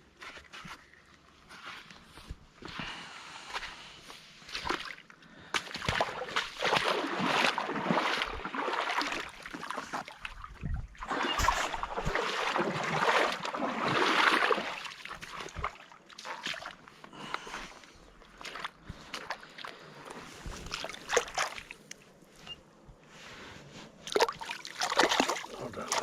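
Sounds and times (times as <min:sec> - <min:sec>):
water splashing and sloshing: 0:03.5 - 0:26.0.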